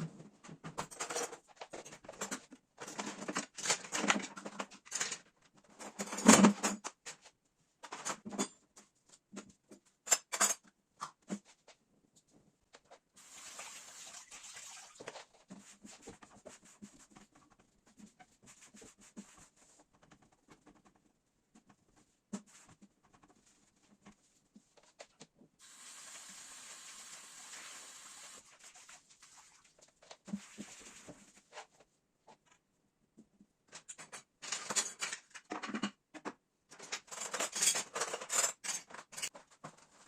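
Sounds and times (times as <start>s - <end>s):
objects clicking and clattering: 0.7s - 8.6s, 33.7s - 40.0s.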